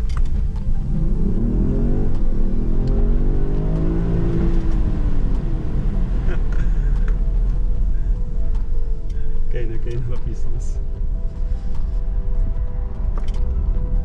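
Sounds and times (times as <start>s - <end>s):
car engine accelerating hard: 0.0s - 8.0s.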